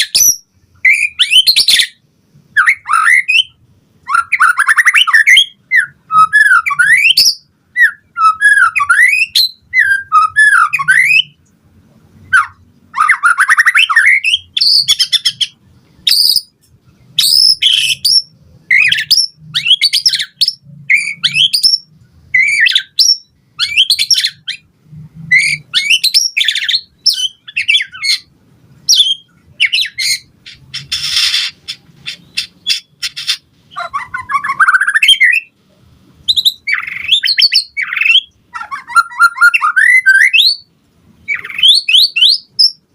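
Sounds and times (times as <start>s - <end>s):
bird singing whistles and trills: 0.0s - 11.4s, 12.2s - 16.6s, 17.2s - 24.7s, 25.3s - 28.3s, 28.9s - 35.5s, 36.2s - 42.8s.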